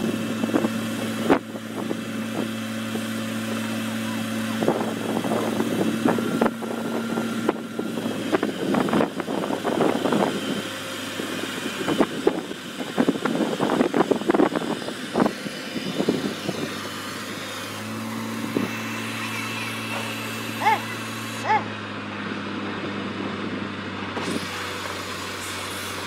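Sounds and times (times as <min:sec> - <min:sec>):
heavy machine engine running: 0:00.0 - 0:26.0.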